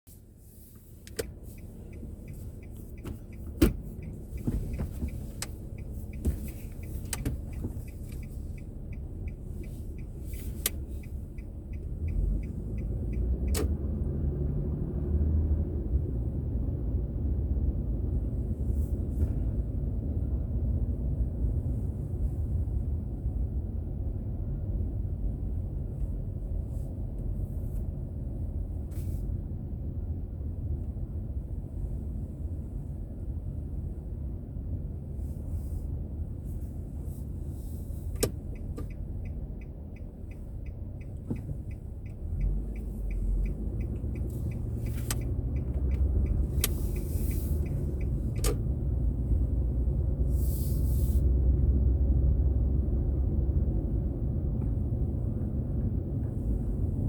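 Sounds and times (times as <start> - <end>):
car engine and road rumble: 0.0 - 57.0
faint regular ticking: 0.8 - 13.6, 38.1 - 49.0.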